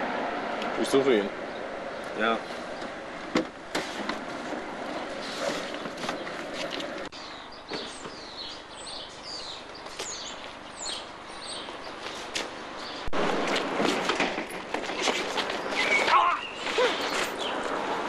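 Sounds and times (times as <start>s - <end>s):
street ambience hiss: 0.0s - 18.0s
small birds chirping: 0.8s - 3.0s, 4.8s - 13.1s, 15.4s - 17.8s.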